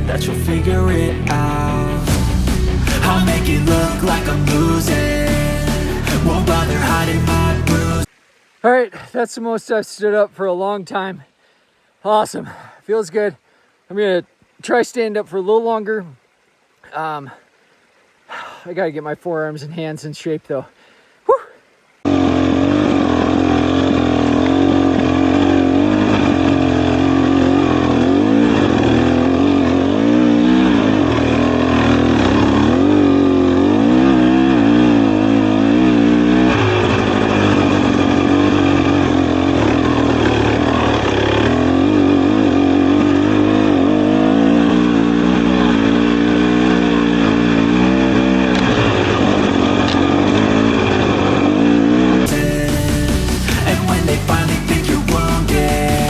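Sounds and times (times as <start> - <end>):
dirt bike engine revving: 0.0 - 8.1, 22.0 - 56.0.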